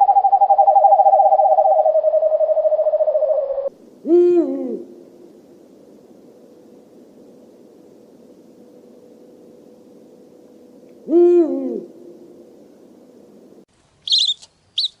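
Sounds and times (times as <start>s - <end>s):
high bird chirp: 0.0s - 3.7s, 14.0s - 15.0s
owl hooting: 0.0s - 5.1s, 11.0s - 12.1s, 14.1s - 15.0s
low background hiss: 0.0s - 15.0s.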